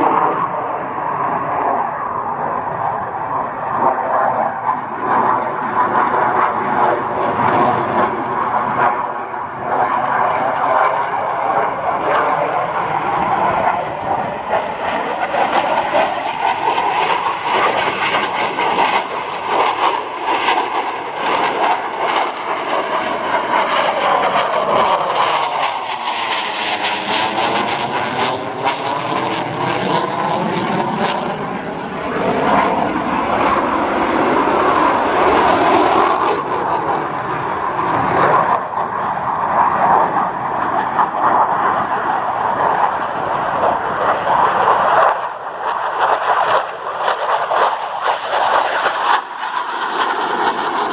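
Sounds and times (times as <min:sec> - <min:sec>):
fighter jet flying past: 0:00.0 - 0:50.9.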